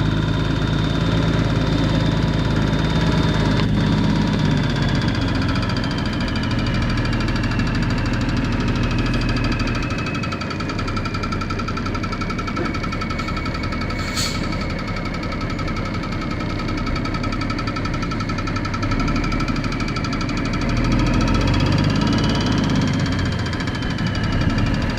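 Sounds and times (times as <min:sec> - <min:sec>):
truck engine running: 0:00.0 - 0:24.9.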